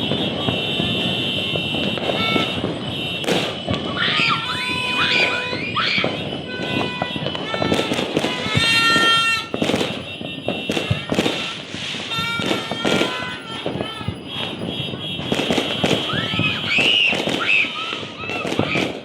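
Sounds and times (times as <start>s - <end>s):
fireworks and firecrackers banging: 0.0s - 19.0s.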